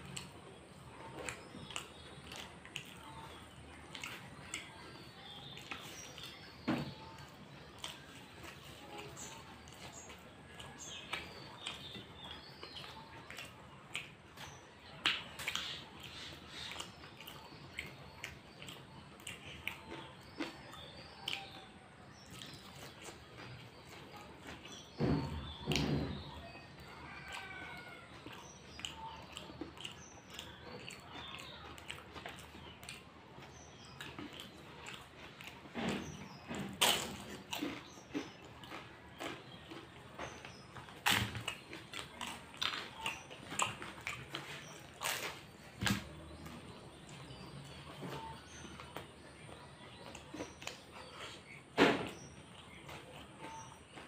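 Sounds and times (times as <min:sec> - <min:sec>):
mouth clicks and smacks: 0:00.0 - 0:48.1
food crunching: 0:00.0 - 0:54.0
man chewing food: 0:00.0 - 0:54.0
bites into crisp pastry: 0:25.5 - 0:49.0.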